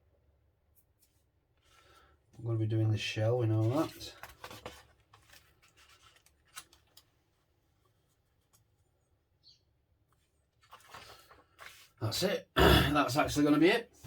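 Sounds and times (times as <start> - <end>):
light rustle: 3.6 - 8.8.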